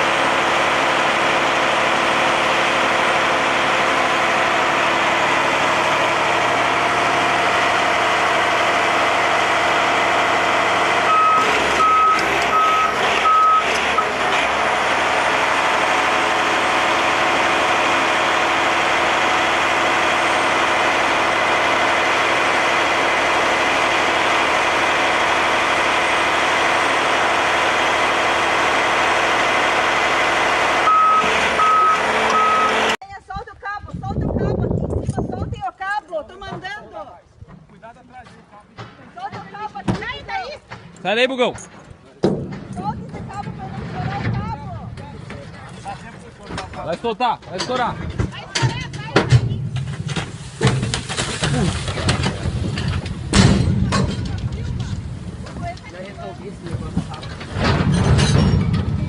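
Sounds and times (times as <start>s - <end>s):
truck engine running: 0.0s - 33.0s, 38.9s - 59.0s
reversing alarm beeps: 11.0s - 14.2s, 30.9s - 32.9s.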